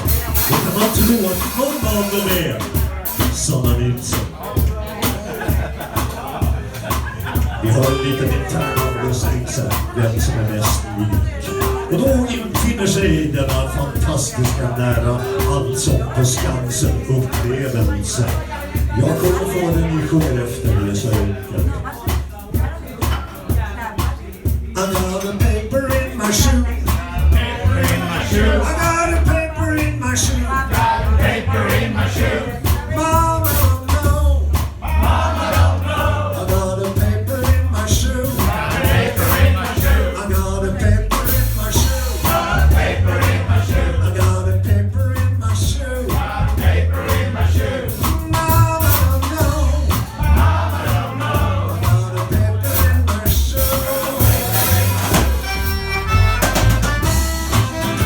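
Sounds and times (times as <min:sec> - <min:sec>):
band playing live: 0:00.0 - 0:58.0
person singing: 0:11.4 - 0:18.3, 0:47.6 - 0:58.0.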